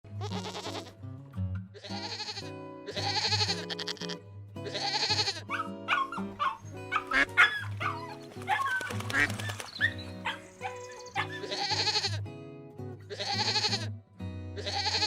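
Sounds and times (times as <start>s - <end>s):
background music: 0.1s - 15.0s
animal calls: 5.5s - 12.1s.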